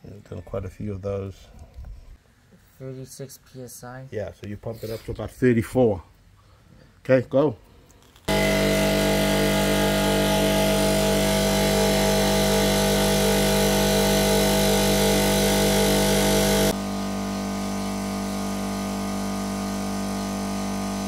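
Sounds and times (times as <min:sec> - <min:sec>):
air compressor running: 0:08.3 - 0:21.0.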